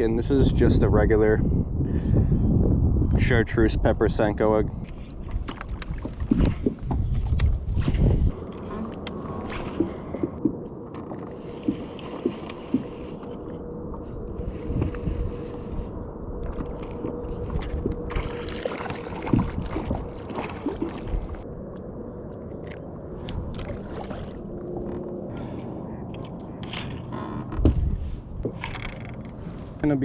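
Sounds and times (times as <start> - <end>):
fishing tackle clicking and rustling: 25.6 - 27.6, 28.4 - 29.4.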